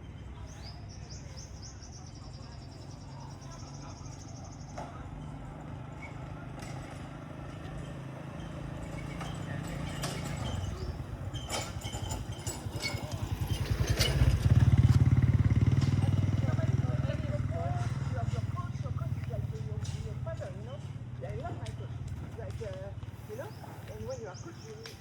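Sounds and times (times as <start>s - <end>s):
motorbike engine chugging: 0.0s - 25.0s.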